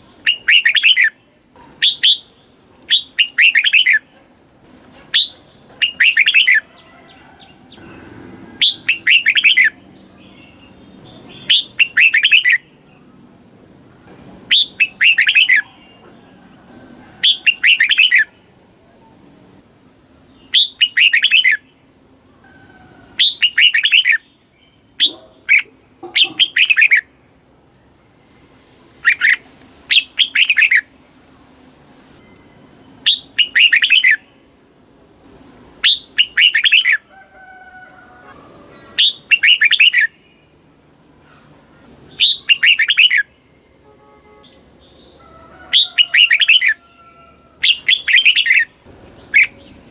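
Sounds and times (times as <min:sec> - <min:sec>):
bird singing short phrases: 0:00.1 - 0:01.2, 0:23.2 - 0:27.0, 0:32.2 - 0:34.4, 0:38.9 - 0:45.1, 0:47.6 - 0:49.9.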